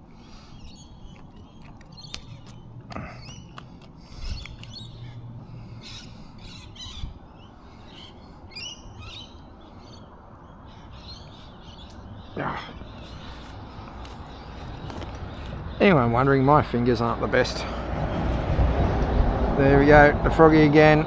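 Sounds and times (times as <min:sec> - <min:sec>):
birds chirping and calling: 0:00.0 - 0:18.2
sharp clicks: 0:00.5 - 0:04.8.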